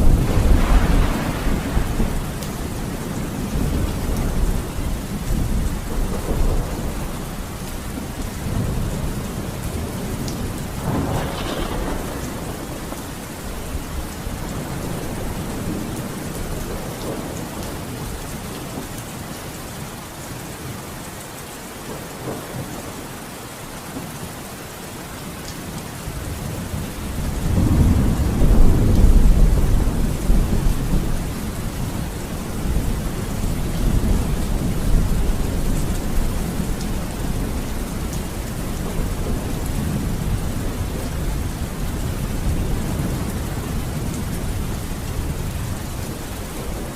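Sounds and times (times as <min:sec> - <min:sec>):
sharp thunderclap: 0:00.0 - 0:04.6, 0:10.8 - 0:13.2
thunder rumbling: 0:00.0 - 0:18.1, 0:26.2 - 0:46.9
steady rain: 0:00.0 - 0:46.9.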